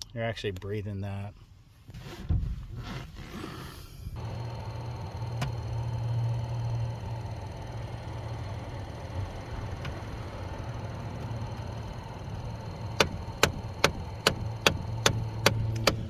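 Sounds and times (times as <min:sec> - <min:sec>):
car engine humming: 0:04.1 - 0:16.0.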